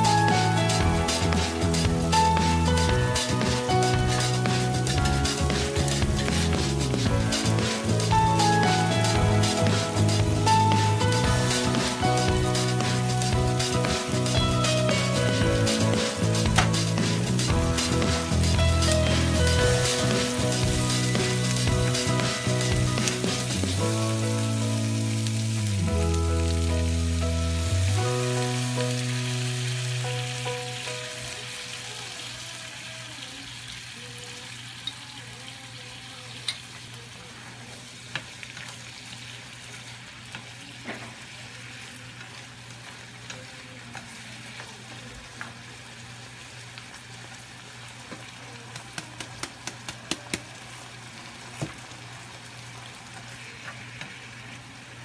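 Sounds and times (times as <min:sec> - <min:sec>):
background music: 0:00.0 - 0:31.8
fish frying in a pan: 0:00.0 - 0:55.0.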